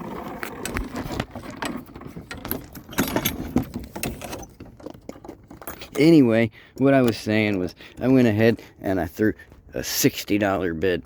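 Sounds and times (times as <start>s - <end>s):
mechanical clicking and rattling: 0.3s - 8.3s.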